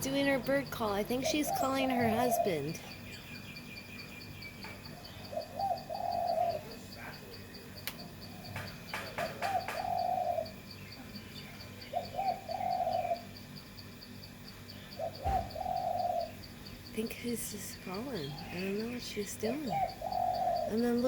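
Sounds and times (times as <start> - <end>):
pulsing insect chirp: 0.0 - 21.0
dove cooing: 0.9 - 3.0, 4.9 - 13.4, 15.0 - 16.5, 17.1 - 21.0.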